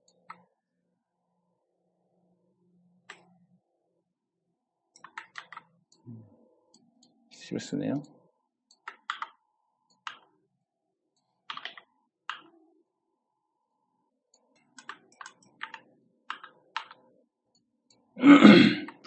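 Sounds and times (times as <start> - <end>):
keyboard and mouse clicks: 0.0 - 0.5, 3.0 - 3.4, 4.9 - 6.0, 8.7 - 10.4, 11.2 - 12.6, 14.4 - 18.1.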